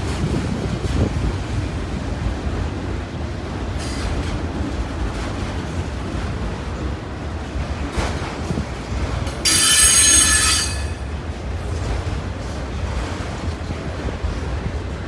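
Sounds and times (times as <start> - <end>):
freight train rumbling past: 0.0 - 15.0
metallic wheel squeal: 9.4 - 11.0.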